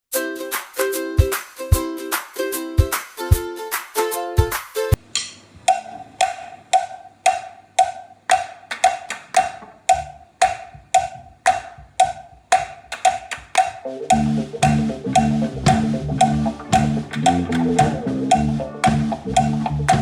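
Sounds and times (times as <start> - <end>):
percussion beat of sharp knocks: 4.4 - 20.0
bass line: 13.9 - 20.0
faint low notes: 13.9 - 20.0.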